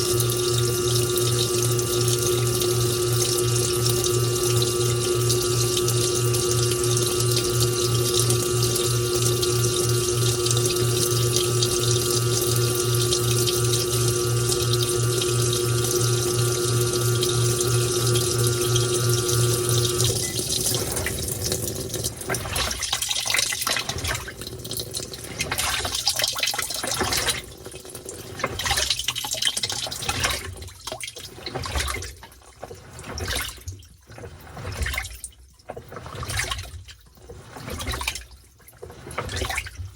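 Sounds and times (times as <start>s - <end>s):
pump humming: 0.0s - 39.9s
water rushing into washing machine: 0.0s - 39.9s
water trickling and splashing: 0.0s - 39.9s.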